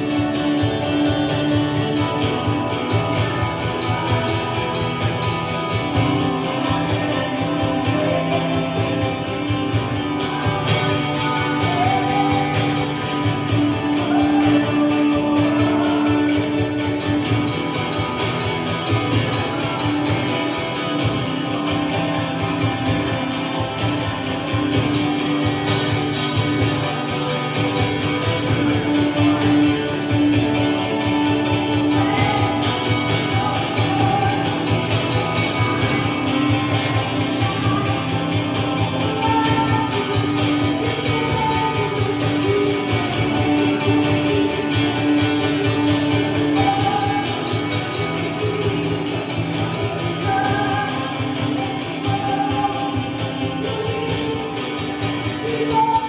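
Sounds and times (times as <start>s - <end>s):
voices singing: 0.0s - 56.0s
worship music with guitar: 0.0s - 56.0s.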